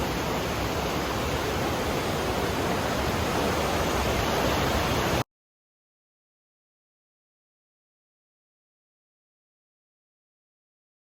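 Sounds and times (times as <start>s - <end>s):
river water rushing: 0.0s - 5.2s.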